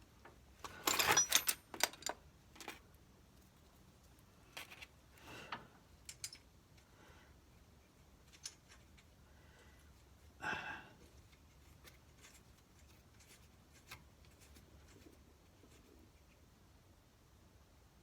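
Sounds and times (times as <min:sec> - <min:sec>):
metallic clicks of tools: 0:06.0 - 0:06.5.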